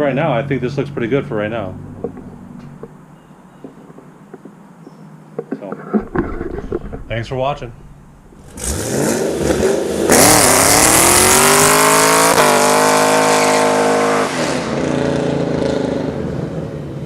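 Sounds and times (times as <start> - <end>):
vehicle engine accelerating: 6.1 - 17.0.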